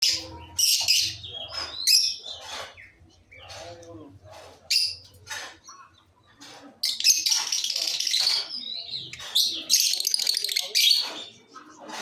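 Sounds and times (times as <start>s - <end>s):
lovebirds chirping and squawking: 0.0s - 12.0s.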